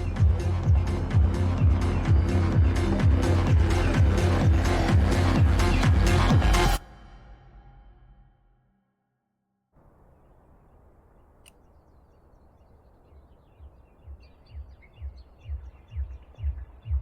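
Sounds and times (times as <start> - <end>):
techno kick drum beat: 0.0 - 6.8, 14.1 - 17.0
bird chirping: 9.8 - 17.0.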